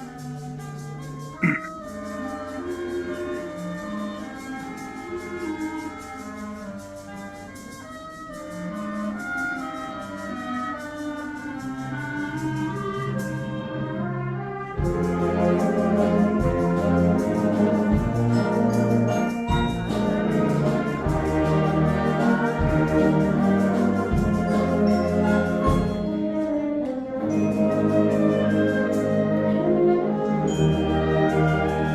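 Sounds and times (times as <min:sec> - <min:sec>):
brass band music: 0:00.0 - 0:31.9.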